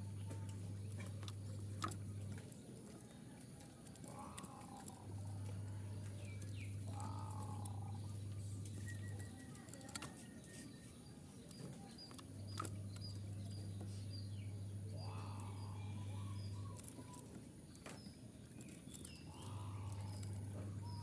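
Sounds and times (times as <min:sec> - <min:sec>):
small birds chirping: 0:00.0 - 0:21.0
dove cooing: 0:06.8 - 0:08.3.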